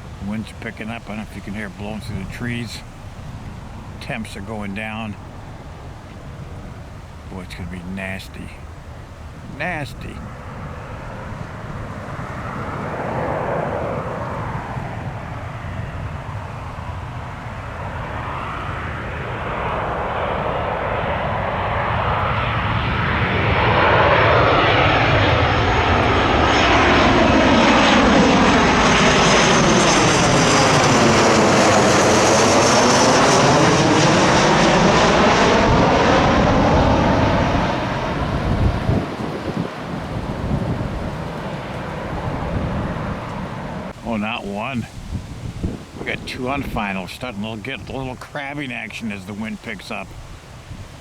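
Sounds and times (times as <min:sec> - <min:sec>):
jet airliner passing overhead: 0:00.0 - 0:51.0
wind on microphone: 0:08.6 - 0:26.6, 0:27.2 - 0:48.2, 0:50.0 - 0:51.0.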